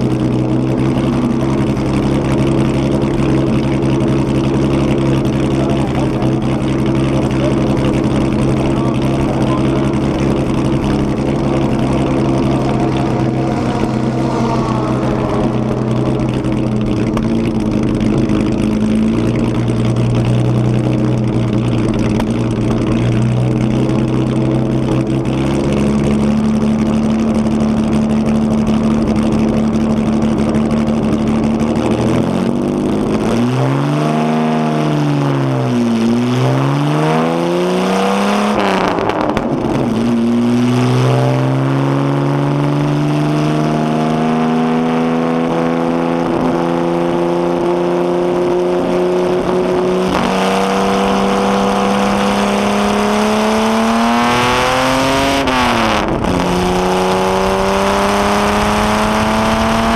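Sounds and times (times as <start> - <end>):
engine revs blipped: 0.0 - 20.3, 33.1 - 59.9
car engine idling: 0.0 - 33.4, 38.5 - 59.9.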